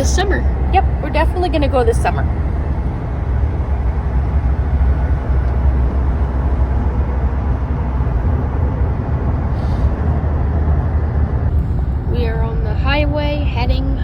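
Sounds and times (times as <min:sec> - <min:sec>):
engine and tyre rumble: 0:00.0 - 0:14.0
road hiss: 0:09.3 - 0:11.7.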